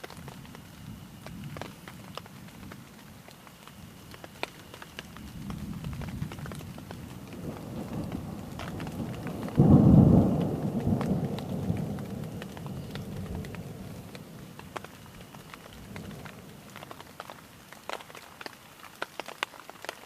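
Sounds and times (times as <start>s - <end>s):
steady rain: 0.0s - 20.0s
thunderclap rumbling: 5.2s - 17.3s.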